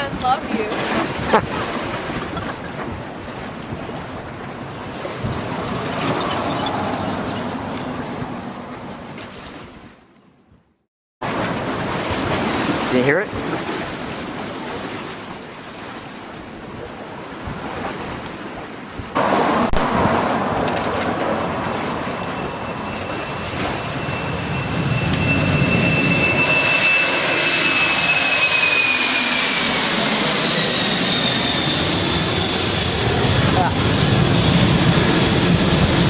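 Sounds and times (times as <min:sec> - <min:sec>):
jet engines rumbling roar: 0:00.0 - 0:09.1, 0:19.1 - 0:36.0
high jet engine whine: 0:00.0 - 0:09.2, 0:19.1 - 0:36.0.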